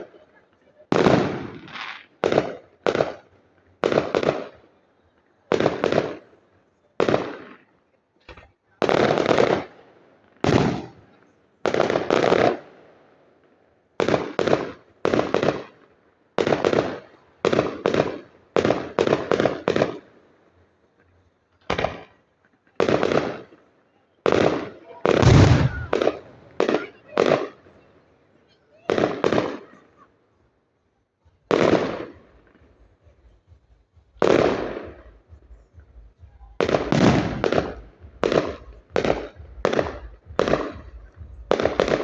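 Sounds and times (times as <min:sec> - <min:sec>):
fireworks bangs: 0:00.8 - 0:04.6, 0:05.5 - 0:06.4, 0:07.0 - 0:12.7, 0:14.0 - 0:15.8, 0:16.4 - 0:20.1, 0:21.6 - 0:23.6, 0:24.2 - 0:27.7, 0:28.8 - 0:30.1, 0:31.2 - 0:42.0.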